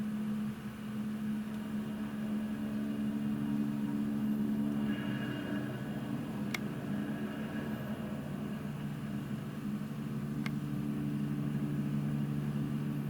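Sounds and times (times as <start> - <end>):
helicopter running: 0.0 - 13.0.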